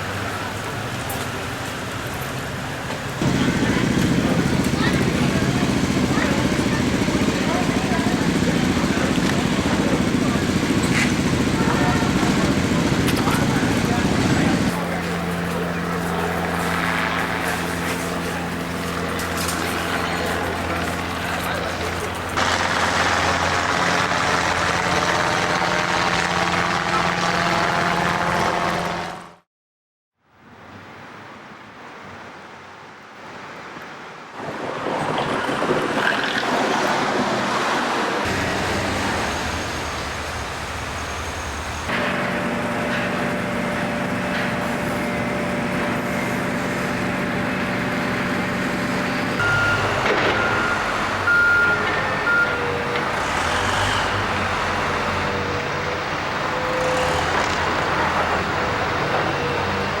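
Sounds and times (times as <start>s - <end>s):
heavy vehicle engines: 0.0s - 29.4s, 34.4s - 60.0s
truck engine hum: 0.0s - 29.4s, 34.5s - 60.0s
high beeps: 49.4s - 52.6s.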